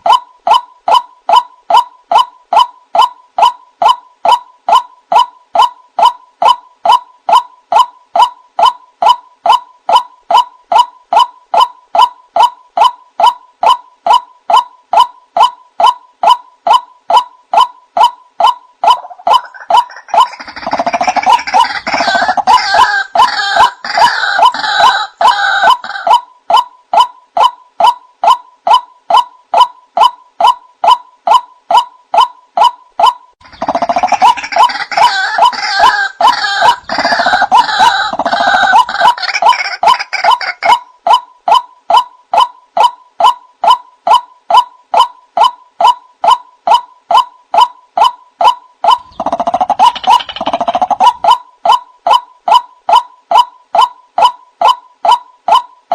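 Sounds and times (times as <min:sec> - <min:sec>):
harsh bird croaking: 0:00.0 - 0:55.8
waterhen calling: 0:17.6 - 0:29.7, 0:30.9 - 0:42.5, 0:47.6 - 0:51.8.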